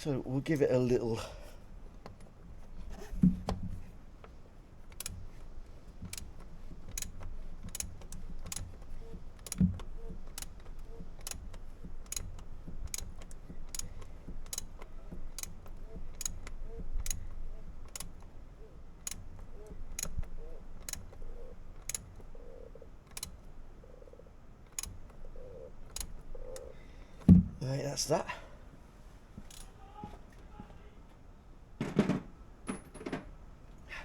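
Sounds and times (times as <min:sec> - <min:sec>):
socket ratchet clicking: 0:04.8 - 0:18.3, 0:19.0 - 0:22.2, 0:24.6 - 0:26.7
dull knocks: 0:27.2 - 0:27.6, 0:31.8 - 0:33.3.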